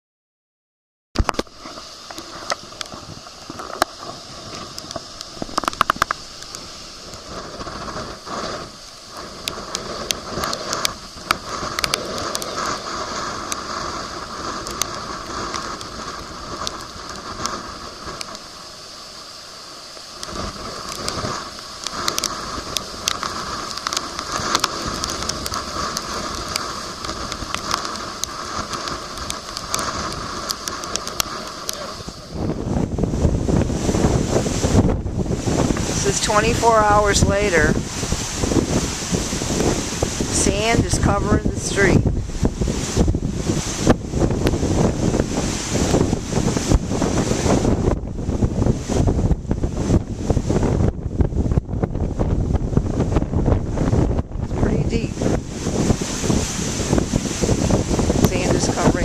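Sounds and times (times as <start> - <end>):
sharp crackling taps: 1.2 - 18.4, 20.0 - 31.8
rushing wind and rain: 1.2 - 59.0.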